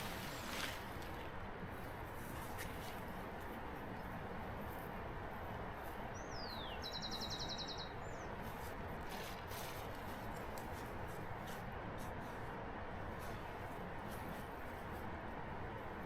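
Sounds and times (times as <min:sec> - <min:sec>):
steady background hiss: 0:00.0 - 0:16.0
songbird whistle and trill: 0:06.2 - 0:08.3.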